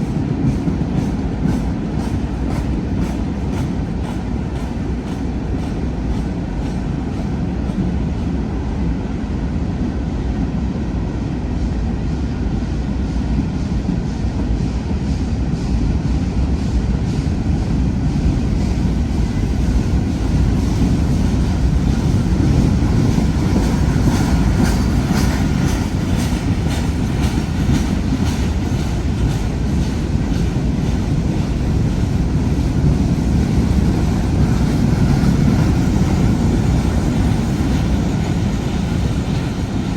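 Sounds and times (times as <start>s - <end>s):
rapid clacking of train wheels: 0.0s - 9.1s, 12.7s - 39.9s
train wheels rumbling on rail: 0.0s - 39.9s.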